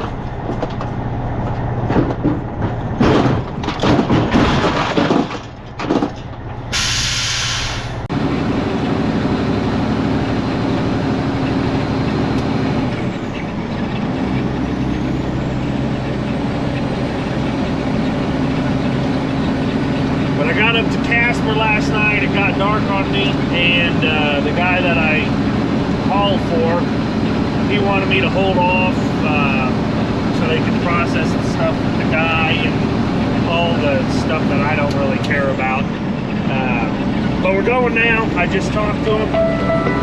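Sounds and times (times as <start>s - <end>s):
diesel engine running: 0.0s - 40.0s
air brakes hissing: 6.7s - 8.1s.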